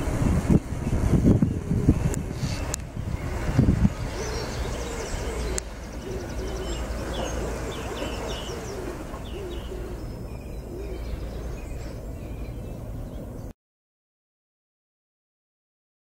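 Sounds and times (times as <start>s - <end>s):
steady low rumble: 0.0s - 13.5s
small birds chirping: 0.2s - 13.5s
low soft bird call: 0.8s - 13.5s.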